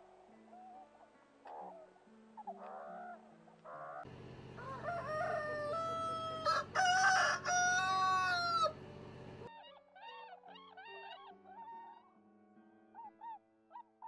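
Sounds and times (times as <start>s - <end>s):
rooster crowing: 4.5s - 8.8s.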